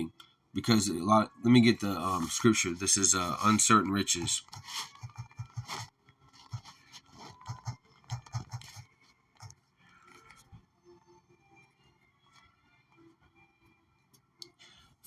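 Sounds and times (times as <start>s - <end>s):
faint scrapes and clicks of handling: 8.4s - 10.6s.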